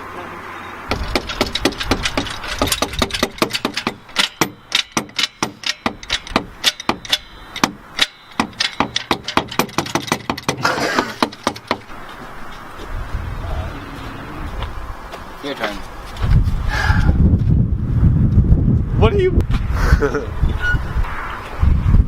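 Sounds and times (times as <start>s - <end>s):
sharp clicks and knocks: 0.9s - 12.6s.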